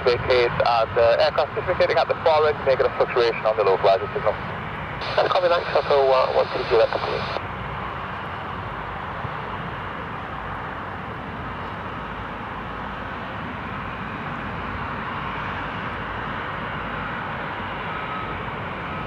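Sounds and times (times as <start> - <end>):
jet engines roaring: 0.0 - 19.0
faint thin whine: 5.0 - 7.4.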